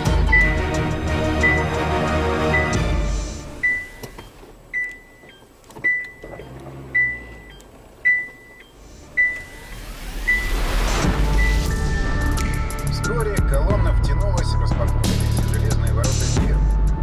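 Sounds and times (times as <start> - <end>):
electronic beeps: 1.4 - 1.8, 3.6 - 12.3.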